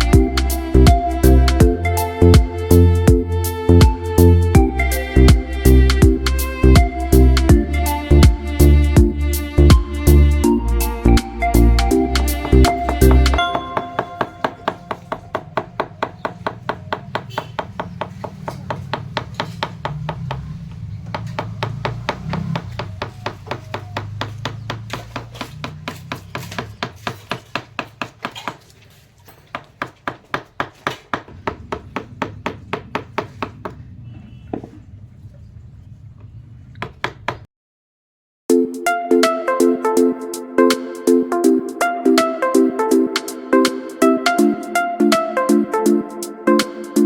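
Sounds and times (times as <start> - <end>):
hammer blows on wood: 11.6 - 28.7.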